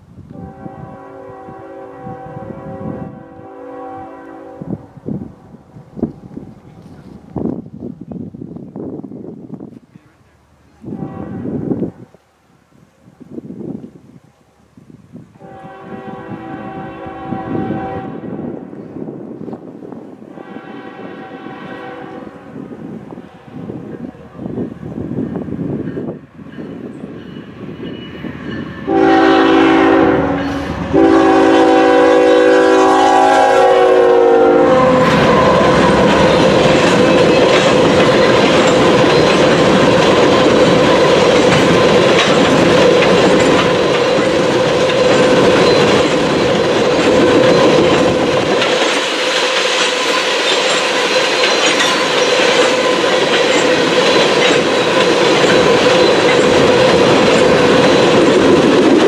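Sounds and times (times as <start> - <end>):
locomotive air horn: 0.3 - 4.9, 10.8 - 12.1, 15.4 - 18.6, 20.3 - 23.8, 28.8 - 36.7
wheels clacking over rail joints: 34.9 - 59.0.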